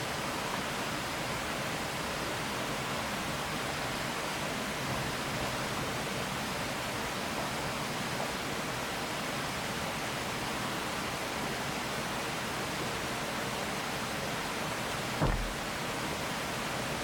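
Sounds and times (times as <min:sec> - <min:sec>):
low thump: 0:15.2 - 0:15.7
rushing flowing water: 0:15.2 - 0:15.7.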